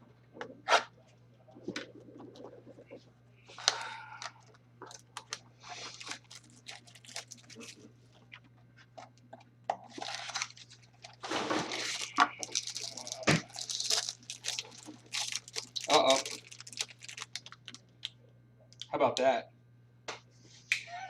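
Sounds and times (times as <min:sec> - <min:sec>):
faint steady hum: 0:00.0 - 0:21.0
wrappers crinkling and rustling: 0:04.8 - 0:07.9, 0:09.9 - 0:18.1.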